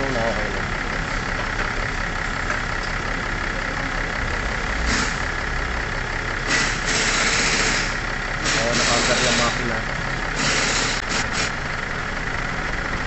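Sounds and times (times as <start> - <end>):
car engine idling: 0.0 - 13.0
hiss: 6.5 - 7.9.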